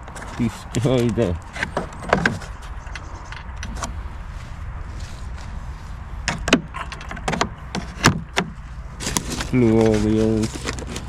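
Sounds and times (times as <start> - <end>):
sharp knocks and clicks: 0.0 - 3.9, 6.3 - 9.3
low steady rumble: 0.0 - 11.0.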